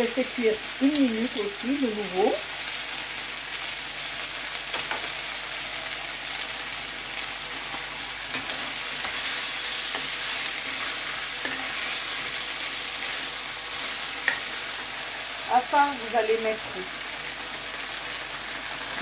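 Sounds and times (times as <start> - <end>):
vegetables sizzling in a wok: 0.0 - 19.0.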